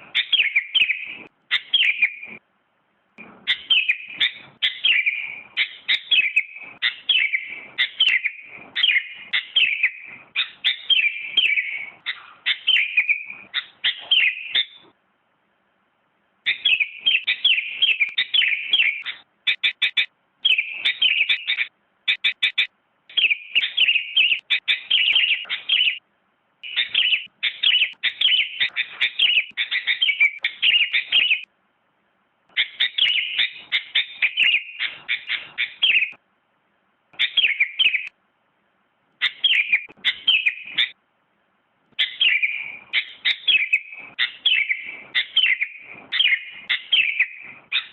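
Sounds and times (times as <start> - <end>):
bulbul singing chirping notes: 3.5 - 14.8, 16.5 - 26.0, 26.6 - 31.5, 32.6 - 36.2, 39.2 - 41.0, 42.0 - 47.9.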